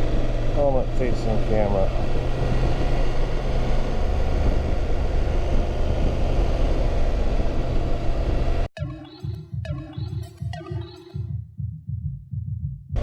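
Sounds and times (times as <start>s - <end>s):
motorcycle engine running: 0.0s - 8.7s
wind and road noise: 0.0s - 8.7s.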